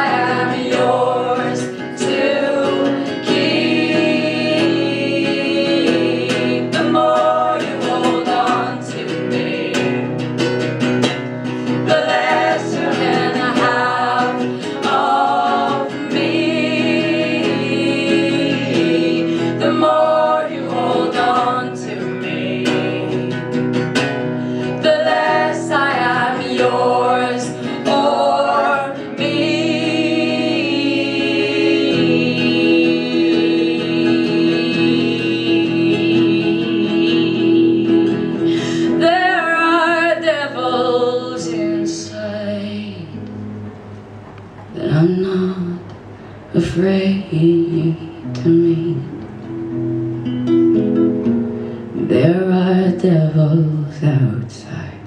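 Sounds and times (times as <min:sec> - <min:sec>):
woman singing: 0:00.0 - 0:10.3, 0:11.6 - 0:24.0, 0:24.6 - 0:43.2, 0:44.7 - 0:45.9, 0:46.5 - 0:49.3, 0:52.0 - 0:55.0
acoustic guitar: 0:00.0 - 0:55.0.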